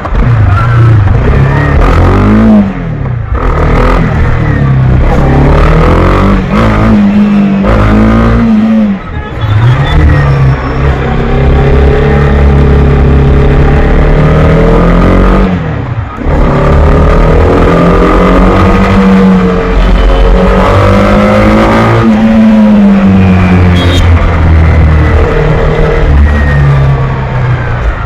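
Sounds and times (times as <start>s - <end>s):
motorcycle engine revving: 9.8s - 28.0s.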